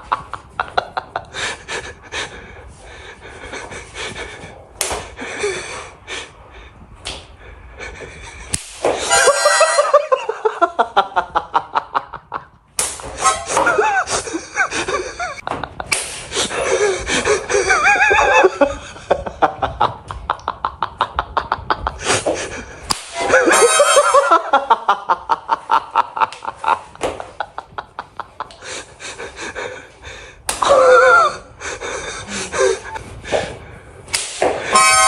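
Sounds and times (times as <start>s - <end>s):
people laughing: 7.8s - 12.6s, 13.5s - 29.9s, 30.6s - 33.0s.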